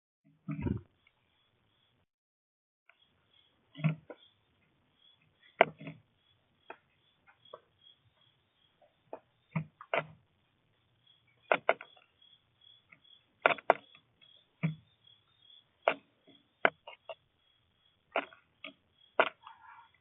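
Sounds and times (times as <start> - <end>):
birds tapping on a feeder: 3.7 - 4.3, 11.4 - 12.1, 12.7 - 17.2.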